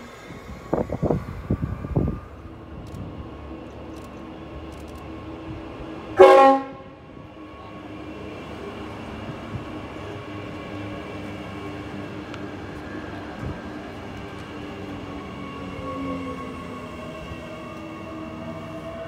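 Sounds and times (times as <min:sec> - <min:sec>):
train carriages rolling past: 0:00.0 - 0:19.0
train horn blast: 0:06.2 - 0:07.0.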